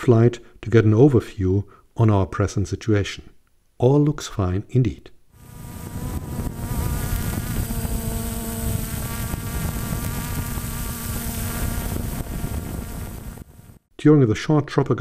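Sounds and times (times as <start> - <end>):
drone propellers buzzing: 5.4 - 13.8.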